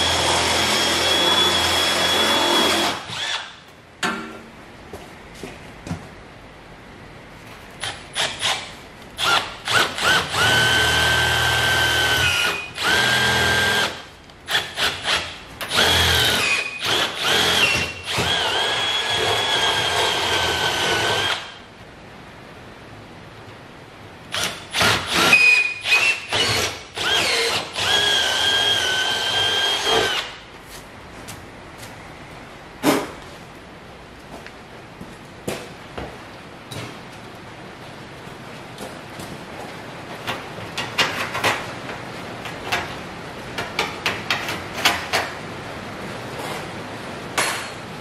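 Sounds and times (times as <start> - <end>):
electric drill drilling steel: 0.0 - 3.5, 9.2 - 21.5, 24.3 - 30.3.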